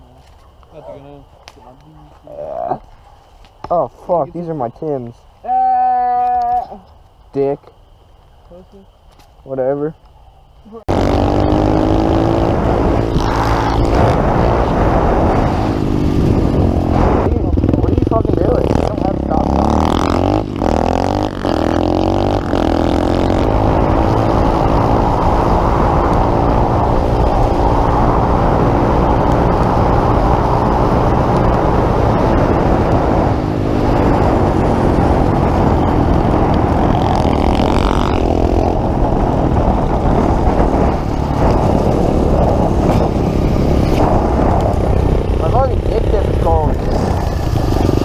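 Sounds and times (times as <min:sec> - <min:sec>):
dense rushing noise: 0:10.9 - 0:48.0
pit bike engine revving: 0:10.9 - 0:48.0.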